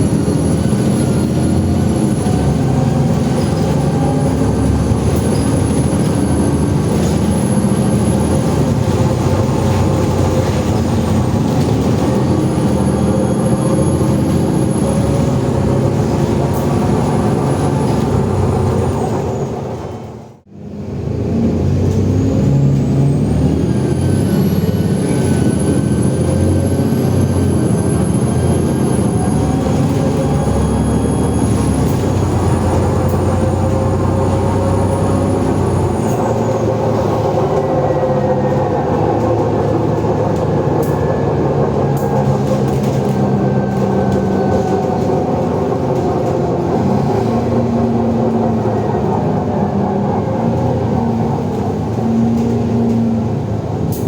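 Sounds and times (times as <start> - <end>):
drive-axle whine: 0.0 - 20.0
bus diesel engine pulling hard: 0.0 - 54.0
turbocharger whistling: 22.2 - 47.6.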